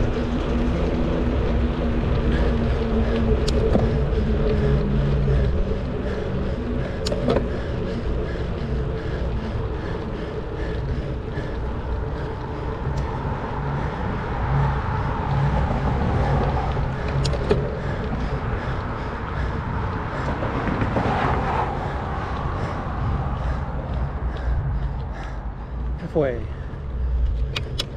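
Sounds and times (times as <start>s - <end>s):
bicycle rolling on pavement: 0.0s - 27.9s
wind rush: 0.0s - 27.9s
sharp ticks: 2.2s - 4.8s, 5.4s - 7.7s, 16.4s - 20.4s, 26.8s - 27.9s.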